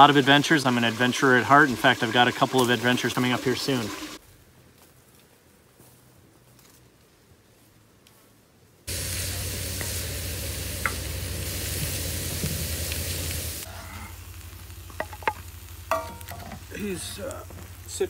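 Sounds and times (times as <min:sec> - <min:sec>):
food sizzling in a skillet: 0:00.0 - 0:04.2, 0:08.9 - 0:18.0.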